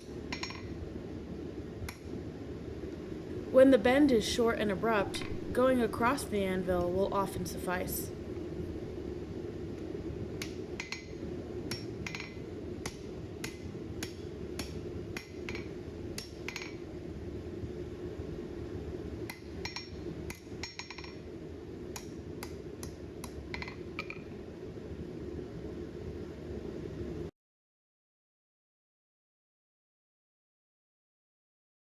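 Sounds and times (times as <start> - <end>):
steady low hum: 0.0 - 20.6
hammer striking steel on anvil: 11.7 - 16.7.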